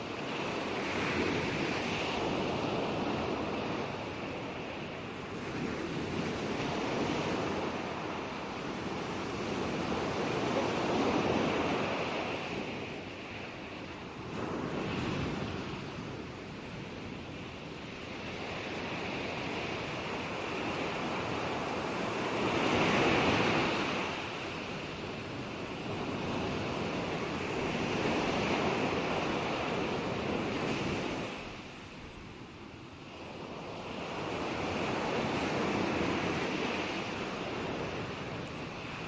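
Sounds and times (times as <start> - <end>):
ocean waves breaking on shore: 0.0 - 39.0.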